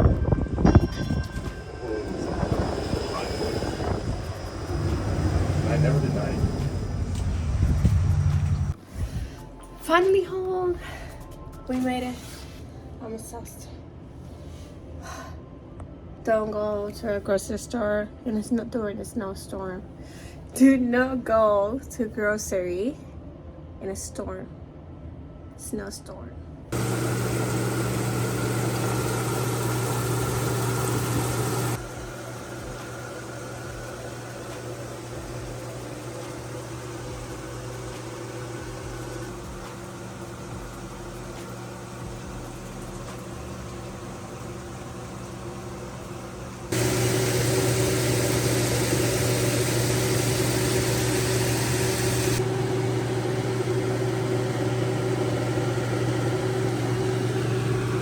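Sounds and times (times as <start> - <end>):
low machine hum: 0.0 - 25.6, 26.3 - 58.0.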